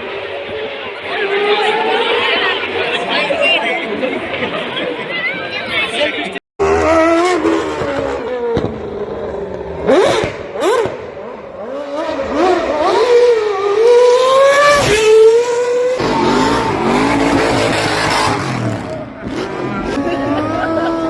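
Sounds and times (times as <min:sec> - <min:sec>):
motorcycle engine revving: 0:06.6 - 0:21.0.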